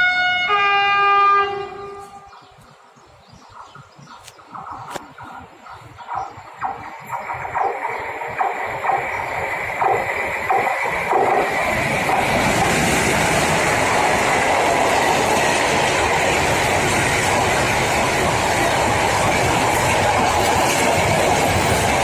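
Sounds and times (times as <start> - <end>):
train wheels clacking over rail joints: 6.5 - 22.0
rush of wagon wheels on rails: 6.6 - 22.0.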